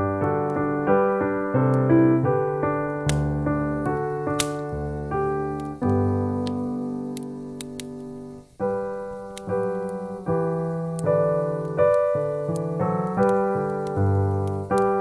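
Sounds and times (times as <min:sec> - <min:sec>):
piano chords and melody: 0:00.0 - 0:15.0
faint sharp clicks: 0:03.1 - 0:04.7, 0:05.5 - 0:08.6, 0:09.3 - 0:10.0, 0:10.9 - 0:15.0.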